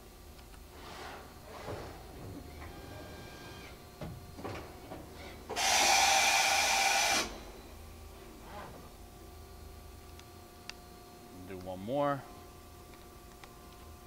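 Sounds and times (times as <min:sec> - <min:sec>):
loud hiss of air: 0:05.2 - 0:07.4.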